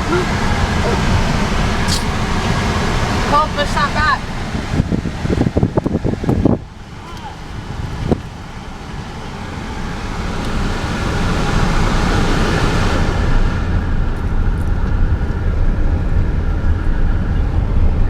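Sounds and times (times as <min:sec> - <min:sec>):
engine and tyre rumble: 0:00.0 - 0:18.0
bright hiss: 0:00.3 - 0:03.0.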